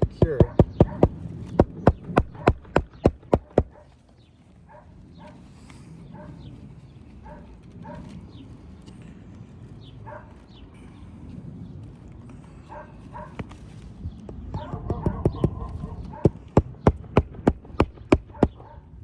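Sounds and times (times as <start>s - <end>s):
hammer driving nail into shingle: 0.0s - 3.8s, 14.4s - 18.7s.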